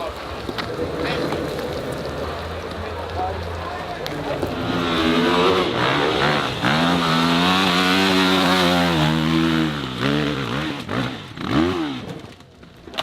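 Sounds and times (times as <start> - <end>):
dirt bike engine revving: 4.2 - 12.4.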